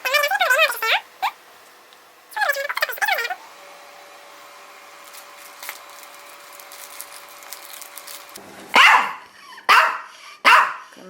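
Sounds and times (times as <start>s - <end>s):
dog barking sharply: 8.7s - 10.9s.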